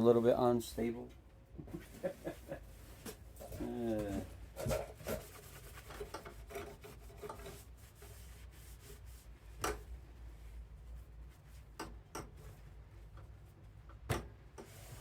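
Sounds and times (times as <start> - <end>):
rubbing and scraping handling: 1.8 - 13.6.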